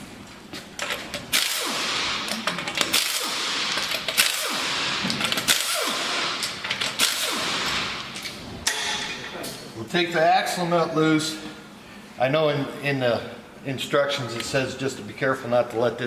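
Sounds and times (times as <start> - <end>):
air impact wrench hammering: 1.3 - 9.2.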